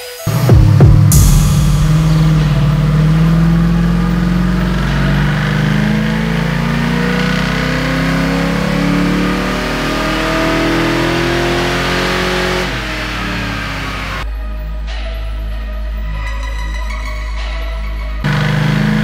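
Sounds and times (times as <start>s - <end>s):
car engine revving under load: 0.3s - 14.2s, 18.2s - 19.0s.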